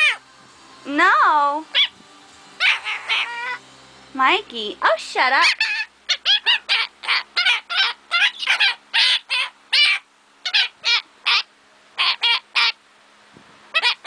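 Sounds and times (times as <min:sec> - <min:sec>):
bird squawking: 0:00.0 - 0:00.2, 0:01.7 - 0:02.0, 0:02.6 - 0:03.6, 0:05.3 - 0:12.8, 0:13.7 - 0:14.0.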